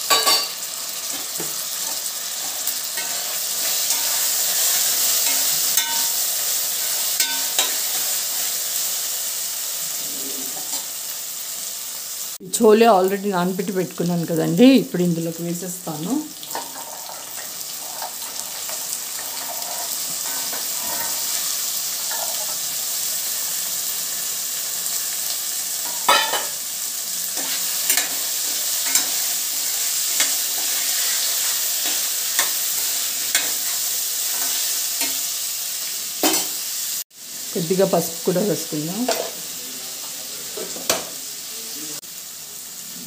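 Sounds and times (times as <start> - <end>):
oil sizzling in a pot: 0.0 - 43.0
metal spatula scraping a pot: 1.1 - 6.2, 16.5 - 22.7, 27.3 - 35.3.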